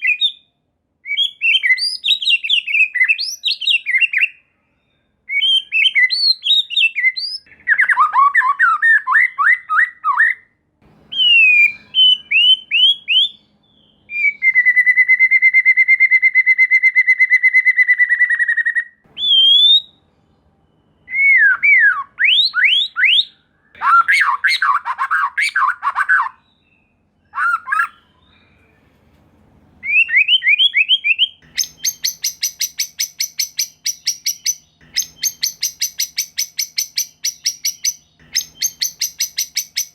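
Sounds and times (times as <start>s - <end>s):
songbird singing varied phrases: 1.1s - 10.5s, 11.1s - 28.7s, 29.8s - 39.9s.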